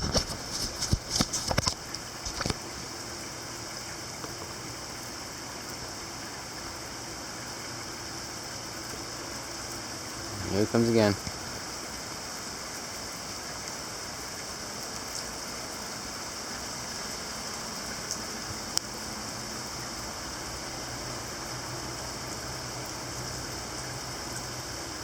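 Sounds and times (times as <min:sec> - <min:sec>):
heavy rain hissing: 0:00.0 - 0:25.0
rain drop ticks: 0:10.7 - 0:11.5, 0:12.7 - 0:15.9, 0:16.6 - 0:19.4.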